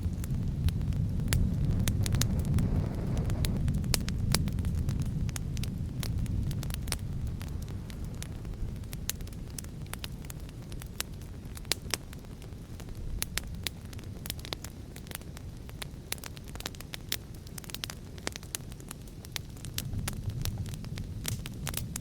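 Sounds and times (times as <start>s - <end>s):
fire crackling and popping: 0.0s - 22.0s
low rumble of wind: 0.0s - 22.0s.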